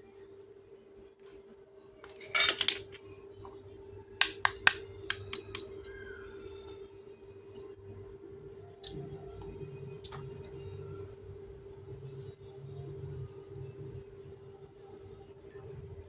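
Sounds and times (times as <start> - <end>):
toy pieces clicking and clinking: 2.1 - 3.0, 4.2 - 6.0
toy pieces scraping: 2.1 - 3.0.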